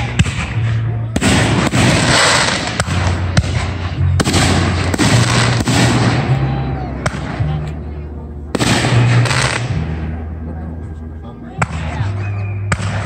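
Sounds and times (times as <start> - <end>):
fireworks bangs: 0.0 - 7.5, 8.5 - 10.0.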